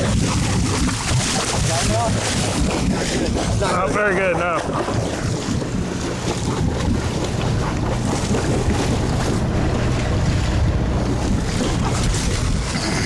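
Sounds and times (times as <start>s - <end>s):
boat engine humming: 0.0s - 13.0s
water washing: 0.0s - 13.0s
wind buffeting microphone: 0.0s - 13.0s.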